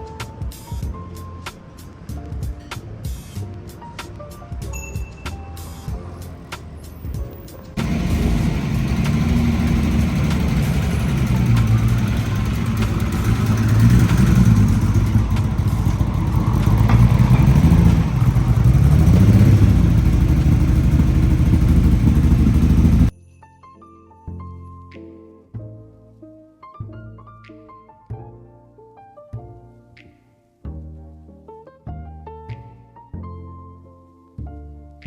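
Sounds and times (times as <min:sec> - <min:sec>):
car engine revving: 0:07.8 - 0:23.1.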